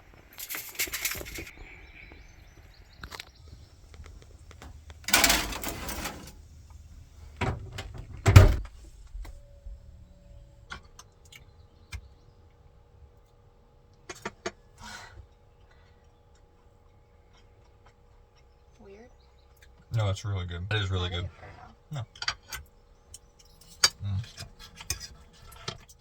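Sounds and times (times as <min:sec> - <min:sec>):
faint steady hum: 0:00.0 - 0:25.9
door sliding and shutting: 0:03.9 - 0:08.8.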